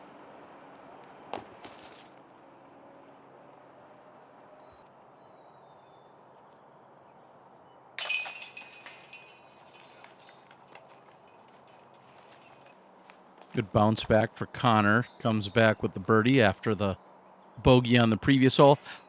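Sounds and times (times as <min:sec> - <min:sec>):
faint outdoor background: 0:00.0 - 0:19.0
disc hitting basket chains: 0:01.4 - 0:02.2, 0:08.0 - 0:12.7.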